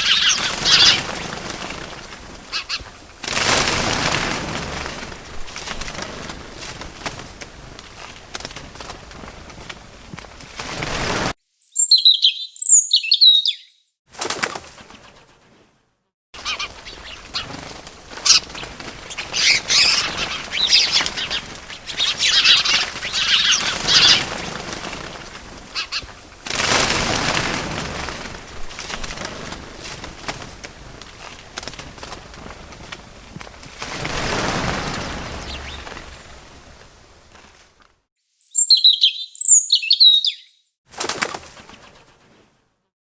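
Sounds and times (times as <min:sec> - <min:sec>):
small birds chirping: 0:00.0 - 0:03.0, 0:11.5 - 0:13.9, 0:16.4 - 0:26.4, 0:34.4 - 0:36.8, 0:38.2 - 0:40.7
wings flapping: 0:00.0 - 0:11.4, 0:13.4 - 0:15.7, 0:16.4 - 0:38.1, 0:40.9 - 0:42.6.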